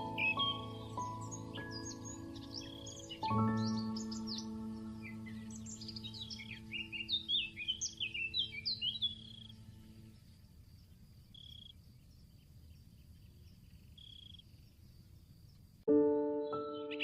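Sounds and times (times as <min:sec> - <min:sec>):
held drone of steady tones: 0:00.0 - 0:11.0
high insect trill: 0:00.0 - 0:15.6.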